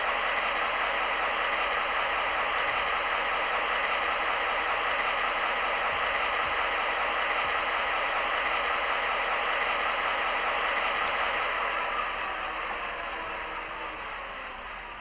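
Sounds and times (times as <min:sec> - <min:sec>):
diesel locomotive engine running: 0:00.0 - 0:15.0.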